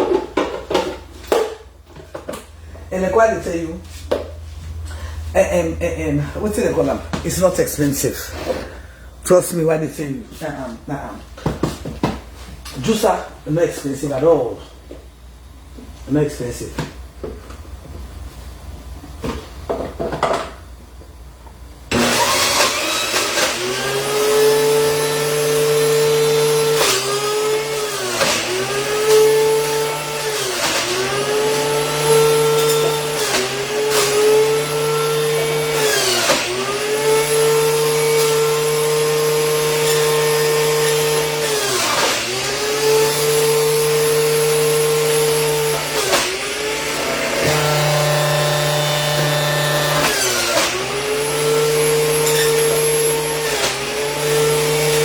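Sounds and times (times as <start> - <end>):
electric juicer motor running: 21.9 - 55.0.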